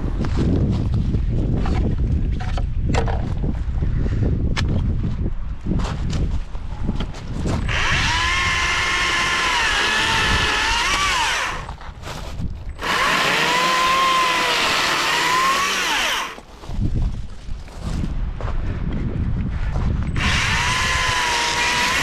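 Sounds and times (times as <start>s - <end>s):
chainsaw cutting wood: 7.6s - 11.8s, 12.8s - 16.4s, 20.2s - 22.0s.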